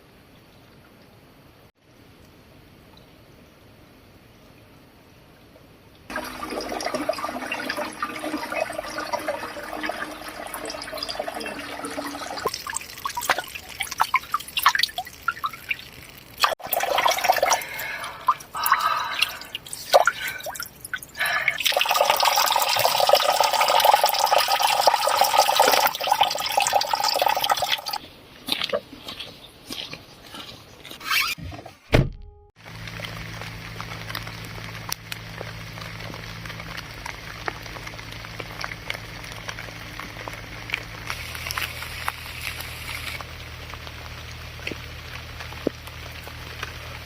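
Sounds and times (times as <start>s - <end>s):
spring water pouring into container: 6.1s - 28.0s.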